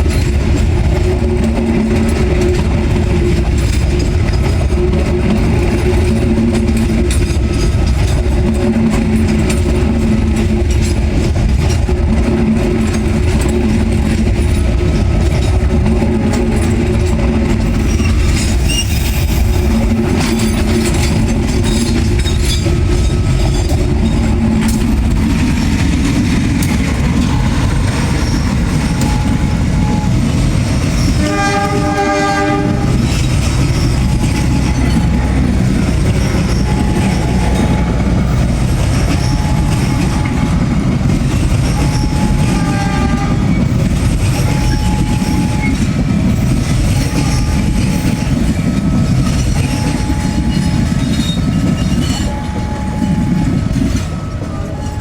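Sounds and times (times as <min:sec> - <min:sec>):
train rumbling on rails: 0:00.0 - 0:55.0
locomotive horn blast: 0:31.2 - 0:33.1, 0:41.8 - 0:43.6.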